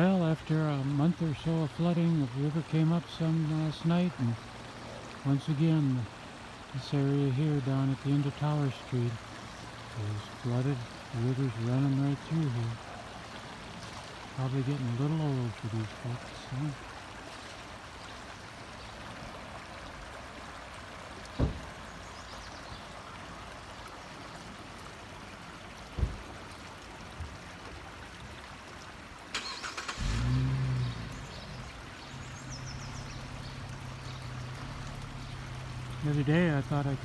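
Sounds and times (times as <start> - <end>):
floodwater rushing: 0.0 - 37.0
car engine starting and running: 29.3 - 37.0.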